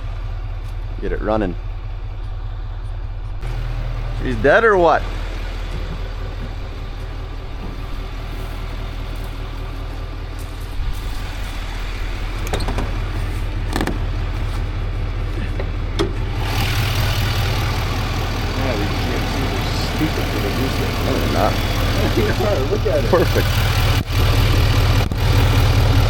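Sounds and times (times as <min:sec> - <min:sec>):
vehicle engine idling: 0:00.0 - 0:26.0
sharp clicks and knocks: 0:12.4 - 0:14.2.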